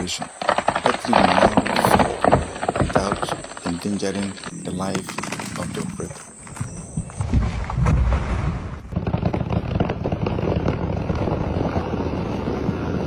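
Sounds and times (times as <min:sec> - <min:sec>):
branches crackling and snapping: 0:00.0 - 0:09.2
tree crashing down: 0:00.0 - 0:12.7.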